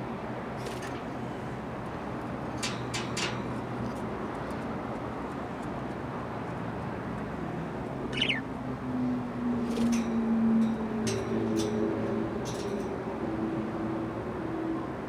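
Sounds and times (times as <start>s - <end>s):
steady background noise: 0.0s - 15.0s
budgerigar chirp: 8.1s - 8.4s.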